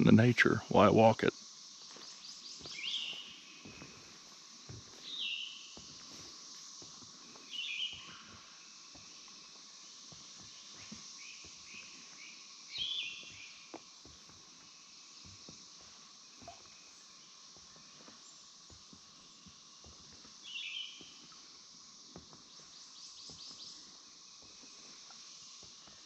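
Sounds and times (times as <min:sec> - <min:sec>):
steady high hiss: 0:00.0 - 0:26.0
footsteps on wooden boardwalk: 0:01.8 - 0:26.0
bird calling: 0:02.1 - 0:03.8, 0:10.8 - 0:13.7.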